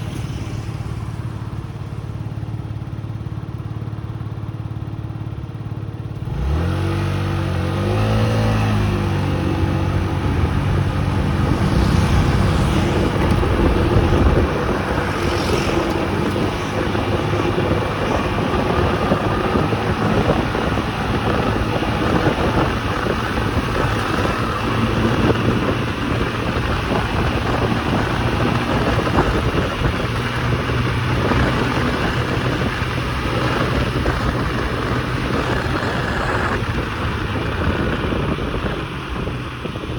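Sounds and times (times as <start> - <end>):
small motorcycle engine revving: 6.1 - 39.9
wind noise on microphone: 6.2 - 39.9.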